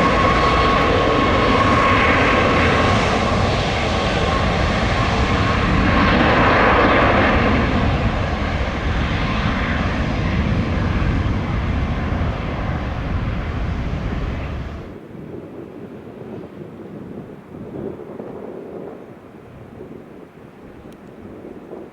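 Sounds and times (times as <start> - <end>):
airliner engines passing: 0.0 - 21.9.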